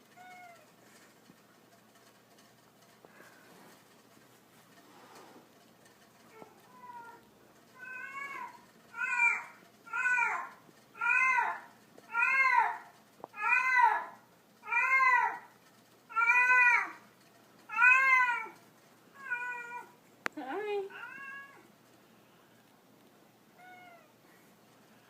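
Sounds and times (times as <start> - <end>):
cat meowing: 0.1 - 0.7, 7.8 - 12.8, 16.1 - 17.0, 17.7 - 18.6, 19.2 - 20.0, 20.9 - 21.6, 23.6 - 24.2.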